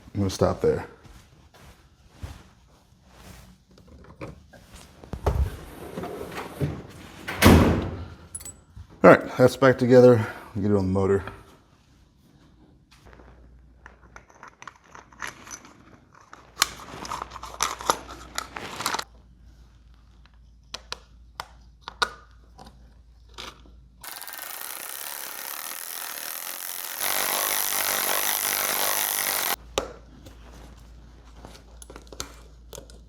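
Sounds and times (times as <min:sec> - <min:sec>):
tools and parts clicking and scraping: 0:08.1 - 0:08.6, 0:13.8 - 0:19.1
loud steady hiss: 0:24.1 - 0:29.6.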